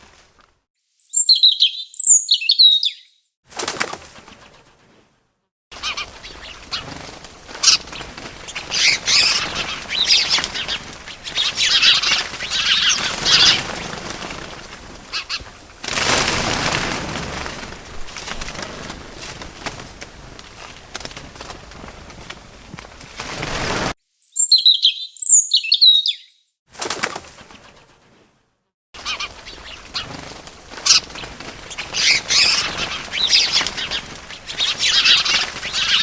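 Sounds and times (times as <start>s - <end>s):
wing flapping: 0.0s - 0.6s, 3.5s - 24.0s, 26.7s - 28.4s, 29.0s - 36.0s
small birds chirping: 0.8s - 3.3s, 5.8s - 15.7s, 24.1s - 26.5s, 29.0s - 36.0s.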